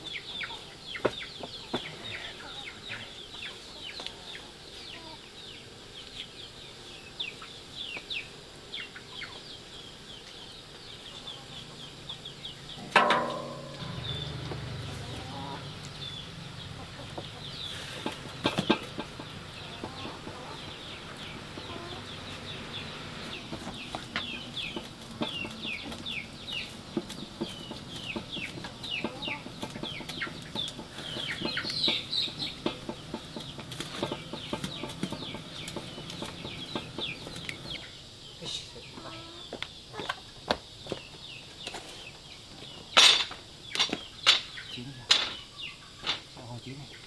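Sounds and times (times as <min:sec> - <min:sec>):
chickens peeping: 0:00.0 - 0:47.0
sharp knocks: 0:12.8 - 0:15.0.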